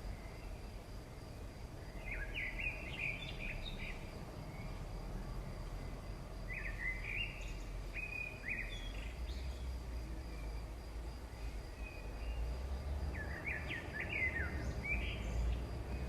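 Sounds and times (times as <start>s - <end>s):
bird chirping: 1.9s - 4.8s, 6.5s - 9.7s, 13.1s - 16.0s.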